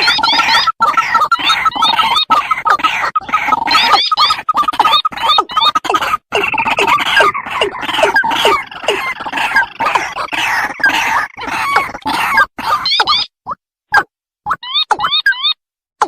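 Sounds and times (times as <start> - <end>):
rails harsh repeated calls: 6.1 - 13.0.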